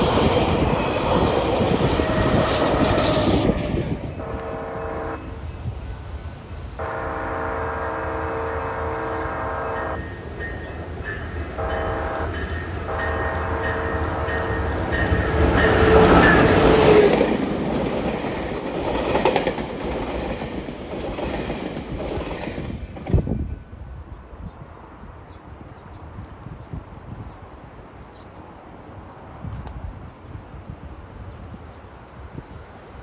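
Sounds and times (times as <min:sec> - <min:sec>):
train air horn: 0:00.0 - 0:05.4, 0:06.8 - 0:10.2, 0:11.6 - 0:17.1
train wheels rushing on rails: 0:00.0 - 0:06.9, 0:09.8 - 0:24.9.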